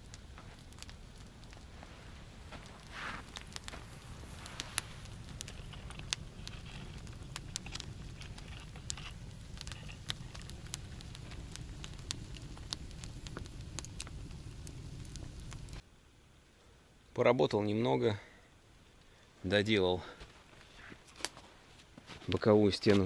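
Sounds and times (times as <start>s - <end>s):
sharp pops of fire: 0.0s - 15.8s
campfire crackling: 0.0s - 23.0s
low steady fire rumble: 0.0s - 23.0s.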